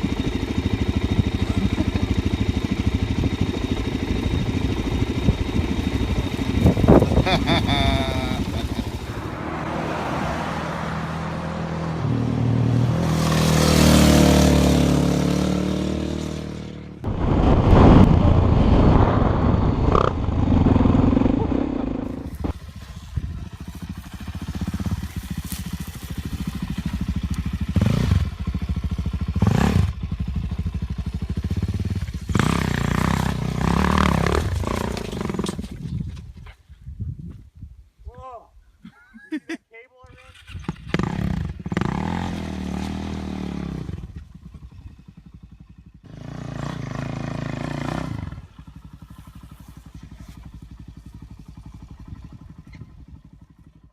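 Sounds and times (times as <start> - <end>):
motorcycle engine revving: 0.0 - 36.1, 40.1 - 53.9
wind rushing: 17.0 - 23.6
engine clatter and knocks: 34.0 - 36.3.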